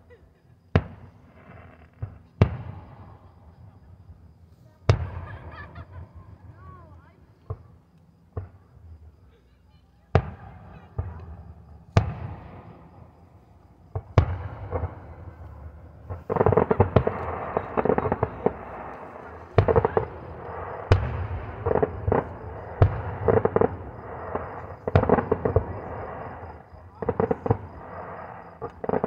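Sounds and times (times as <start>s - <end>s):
fireworks bangs: 4.8s - 8.7s, 10.1s - 29.0s.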